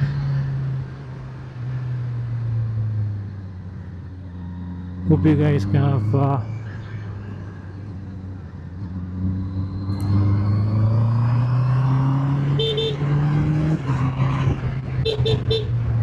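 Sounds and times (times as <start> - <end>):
motorcycle engine accelerating: 8.2 - 16.0.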